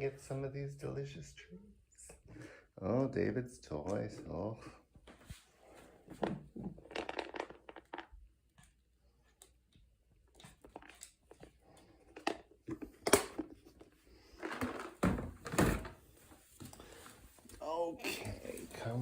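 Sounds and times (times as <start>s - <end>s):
objects clattering: 12.1s - 16.0s.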